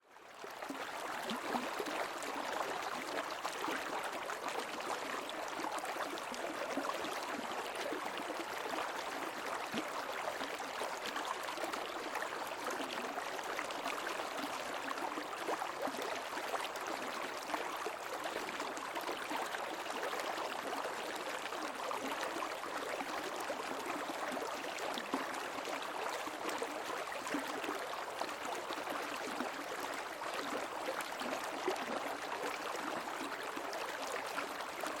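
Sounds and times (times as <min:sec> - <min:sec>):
creek water babbling: 0:00.2 - 0:35.0.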